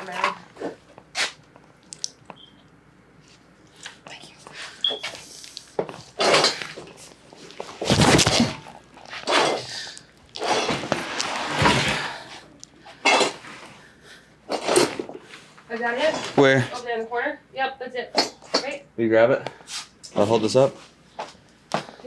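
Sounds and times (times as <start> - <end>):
objects clattering and scraping: 0.0 - 1.3, 5.0 - 13.8, 14.5 - 16.8.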